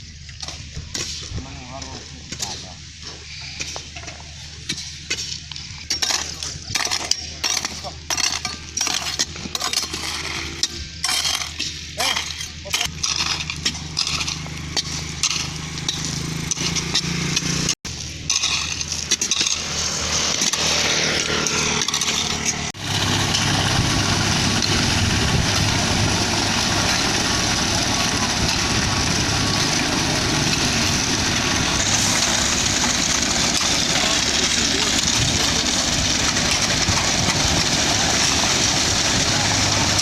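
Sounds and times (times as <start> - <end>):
diesel truck engine humming: 21.2 - 40.0.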